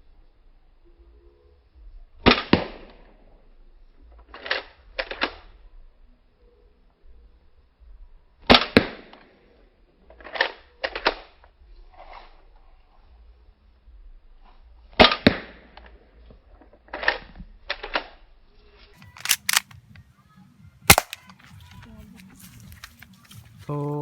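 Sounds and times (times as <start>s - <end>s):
airsoft pistol firing: 19.0s - 19.7s, 20.9s - 21.3s.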